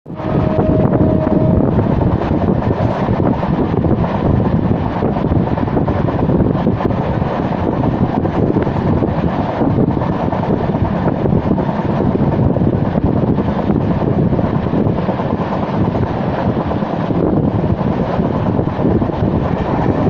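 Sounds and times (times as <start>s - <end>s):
steady whine: 0.0s - 12.4s
train running at speed: 0.0s - 20.0s.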